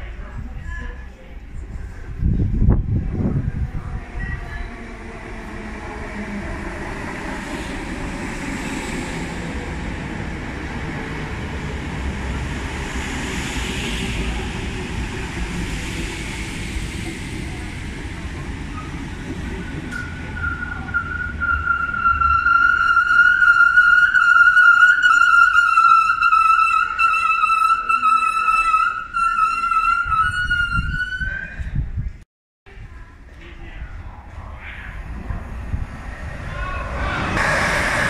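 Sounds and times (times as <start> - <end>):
train wheels rumbling on rails: 0.0 - 31.8, 33.4 - 38.0
train braking whine: 18.7 - 31.4, 36.4 - 38.0.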